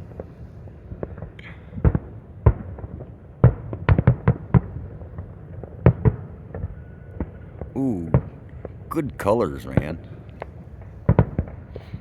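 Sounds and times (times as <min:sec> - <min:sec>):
fireworks bangs and pops: 0:07.8 - 0:12.0.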